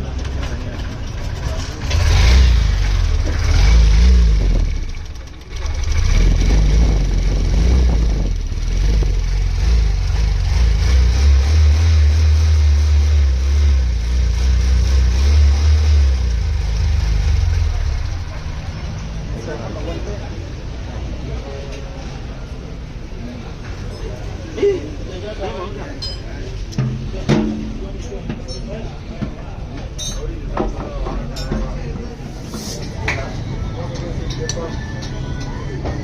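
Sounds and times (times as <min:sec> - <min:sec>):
motorcycle engine revving: 0:00.8 - 0:19.5.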